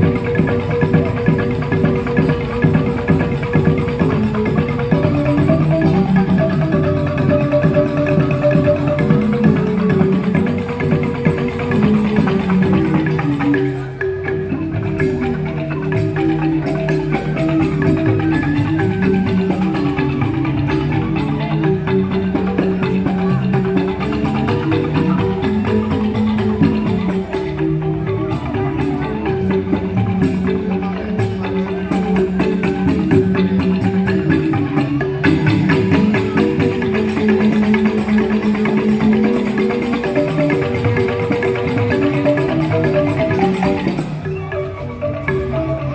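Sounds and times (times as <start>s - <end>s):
bamboo xylophones playing: 0.0s - 45.9s
light percussion: 0.0s - 45.9s.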